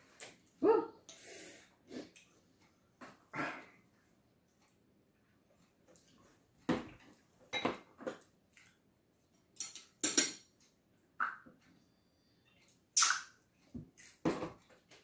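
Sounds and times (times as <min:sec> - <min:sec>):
utensils clinking on dishes: 0:09.6 - 0:10.5.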